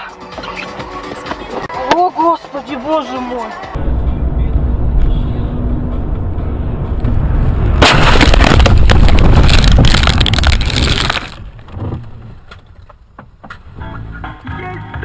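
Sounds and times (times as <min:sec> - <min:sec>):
road and engine rumble: 0:03.5 - 0:14.5
car crash with crunching: 0:07.6 - 0:12.0.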